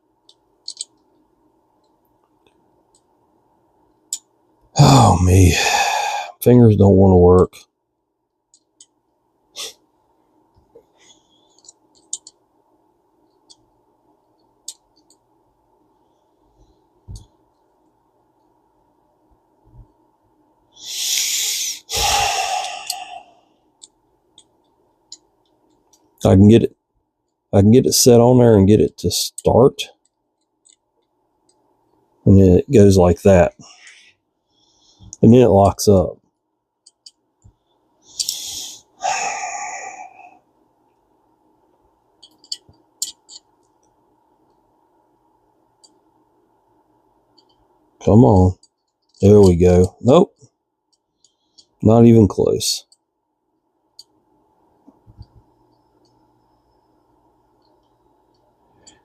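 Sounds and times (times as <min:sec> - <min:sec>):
deep breathing close to microphone: 0:05.5 - 0:06.4, 0:20.8 - 0:23.5, 0:38.2 - 0:40.4.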